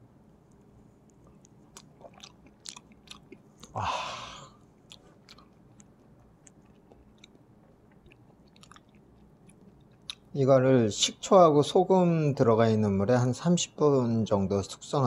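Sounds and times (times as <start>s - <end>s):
wet mouth clicks: 1.0s - 3.8s, 4.8s - 10.3s
person chewing: 1.0s - 10.4s.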